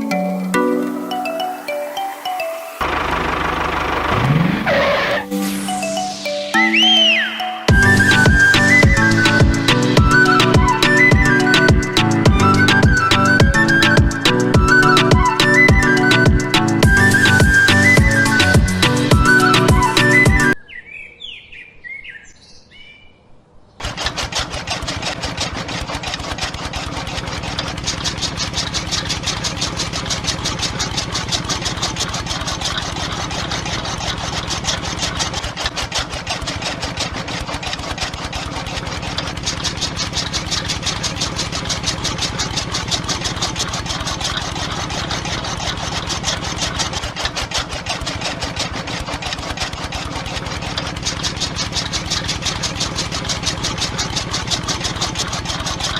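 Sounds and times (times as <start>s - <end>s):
small machine chugging rattle: 2.8s - 5.7s, 23.8s - 55.9s.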